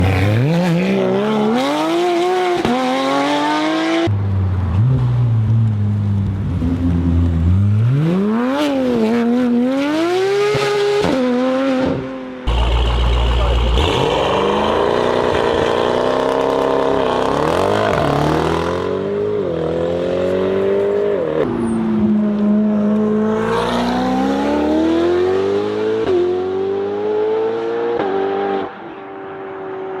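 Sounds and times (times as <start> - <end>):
car engine accelerating: 12.5 - 28.8.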